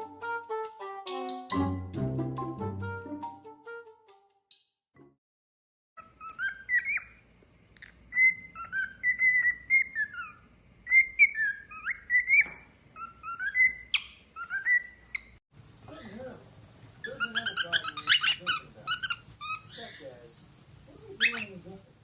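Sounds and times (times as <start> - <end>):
bird whistling and chirping: 6.0 - 7.2, 8.1 - 15.4.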